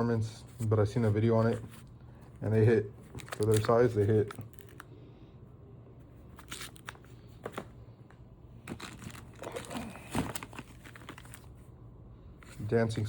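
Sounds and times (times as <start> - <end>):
packaging crinkling and rustling: 3.0 - 4.9, 6.2 - 7.8, 8.6 - 11.7.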